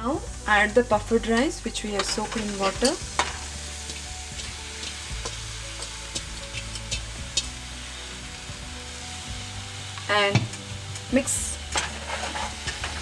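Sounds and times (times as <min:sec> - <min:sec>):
rice sizzling in hot oil: 0:00.0 - 0:13.0
wooden spatula scraping pan: 0:11.7 - 0:13.0.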